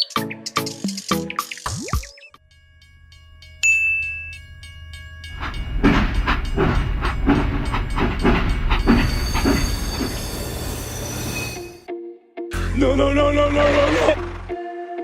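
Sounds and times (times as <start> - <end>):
low train rumble: 2.5 - 11.7
rhythmic train clacking: 2.5 - 11.9.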